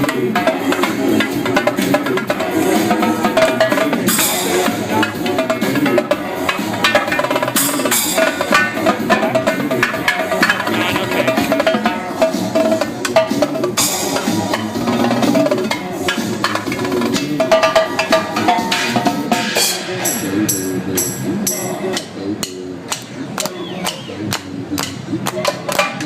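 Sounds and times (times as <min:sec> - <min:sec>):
drum kit playing: 0:00.0 - 0:22.1
dance music backing track: 0:09.8 - 0:11.7.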